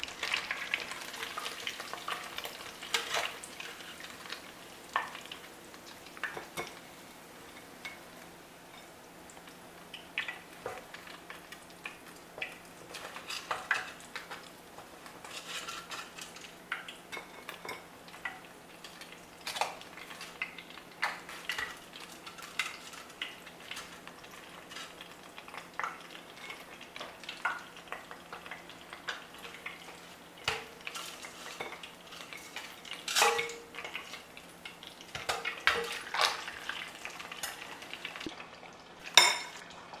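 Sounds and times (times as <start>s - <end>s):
hot oil sizzling: 0.0s - 40.0s
metal fork clinking and scraping: 33.1s - 34.0s.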